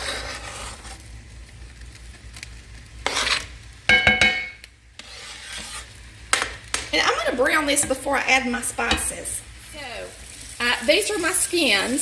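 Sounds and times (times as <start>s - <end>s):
onion scraped into pan: 0.0s - 1.2s, 3.0s - 3.7s, 4.9s - 6.8s
utensil knocking on ringing pan: 3.9s - 4.6s.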